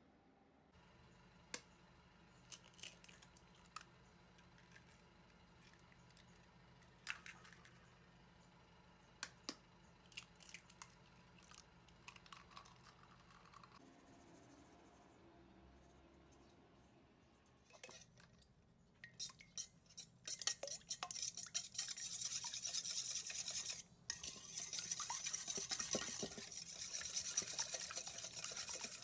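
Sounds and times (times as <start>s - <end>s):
faint hum: 0.0s - 20.3s.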